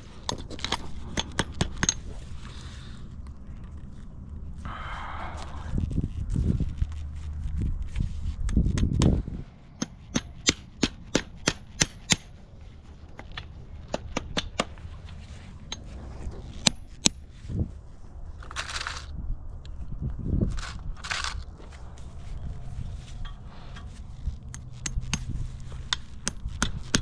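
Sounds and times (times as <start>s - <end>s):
sharp metallic taps: 9.8s - 12.3s.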